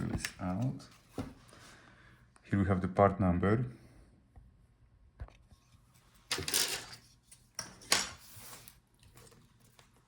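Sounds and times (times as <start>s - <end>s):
scraping and clattering of parts: 6.2s - 8.8s.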